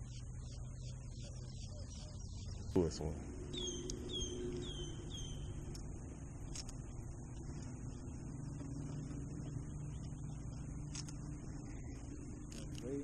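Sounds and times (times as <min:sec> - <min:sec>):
low motor hum: 0:00.0 - 0:13.0
bird whistled calls: 0:03.5 - 0:05.6.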